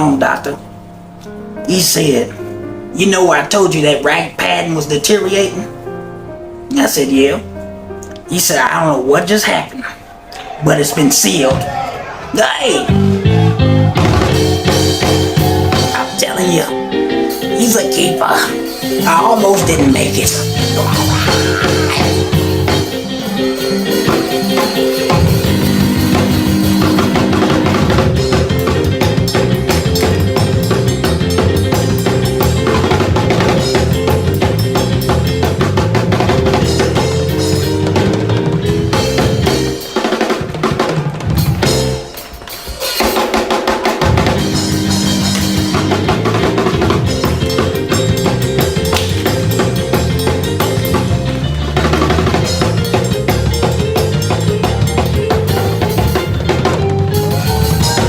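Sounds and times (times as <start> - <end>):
drum kit driving hard: 11.3 - 58.0
bass line: 11.5 - 40.2, 44.0 - 58.0.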